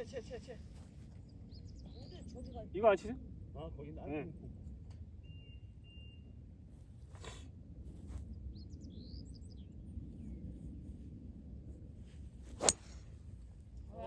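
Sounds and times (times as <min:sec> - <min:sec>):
golf club striking ball: 0:12.6 - 0:13.1.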